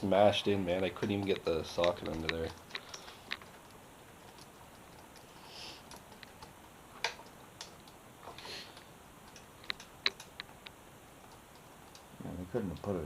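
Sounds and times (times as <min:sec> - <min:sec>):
clicks of hand tools and metal parts: 0:00.8 - 0:03.5.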